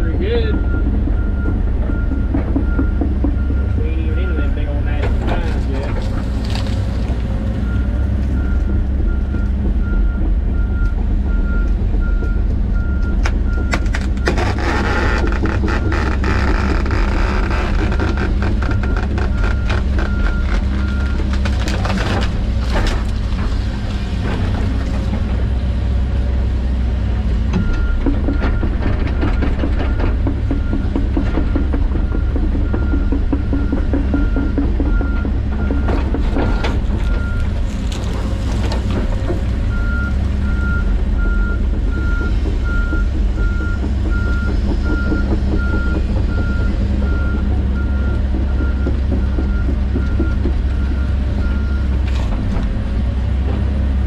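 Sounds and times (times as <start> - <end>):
excavator diesel engine: 0.0 - 54.0
wood and roots cracking: 5.1 - 8.4, 13.2 - 25.3, 36.0 - 40.4.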